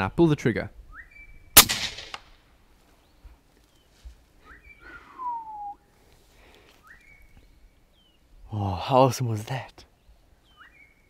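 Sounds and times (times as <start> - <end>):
bird whistling: 0.9 - 1.4, 4.4 - 5.9, 6.8 - 7.5, 10.4 - 11.0.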